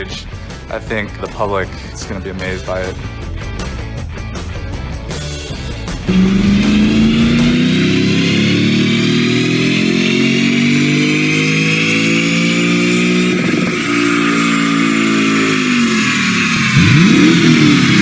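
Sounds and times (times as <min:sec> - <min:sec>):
car engine deep exhaust note: 0:04.8 - 0:18.0.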